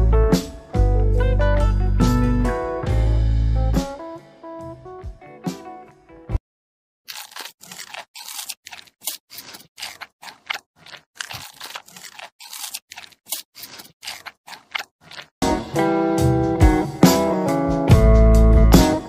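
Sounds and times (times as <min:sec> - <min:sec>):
crunching: 0:07.1 - 0:15.5
guitar music: 0:15.5 - 0:19.0.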